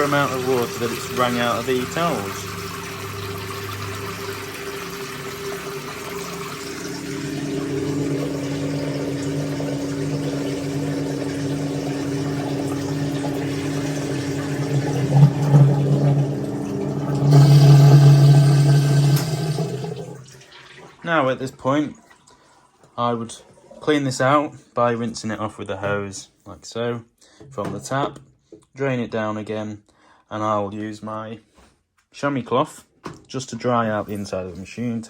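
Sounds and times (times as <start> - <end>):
drain pump humming: 0.0 - 22.5.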